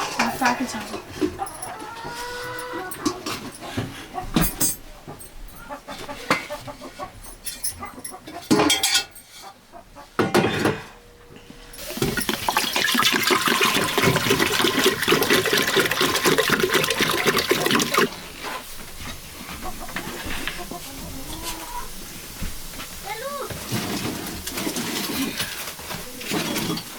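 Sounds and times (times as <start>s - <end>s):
water pouring or splashing: 11.8s - 18.6s.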